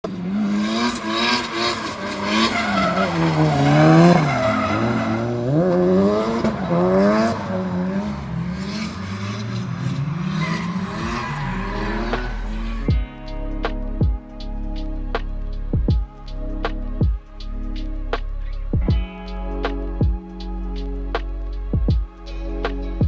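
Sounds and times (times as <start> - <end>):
car engine revving hard: 0.1 - 12.9
tyres skidding: 0.1 - 12.9.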